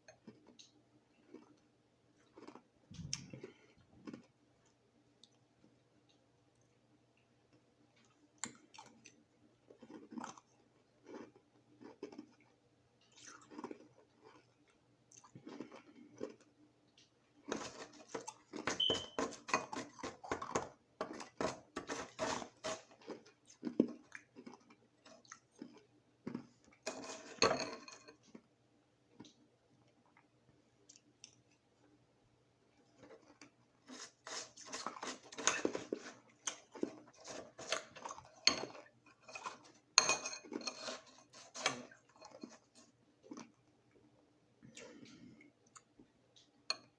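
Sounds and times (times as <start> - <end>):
ice being chewed: 0.0 - 5.4, 7.5 - 16.6, 17.4 - 28.5, 32.7 - 44.1.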